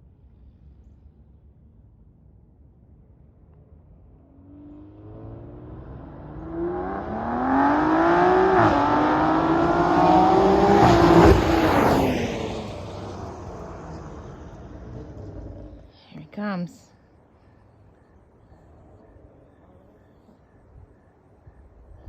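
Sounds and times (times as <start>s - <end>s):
car engine accelerating hard: 4.5s - 15.8s.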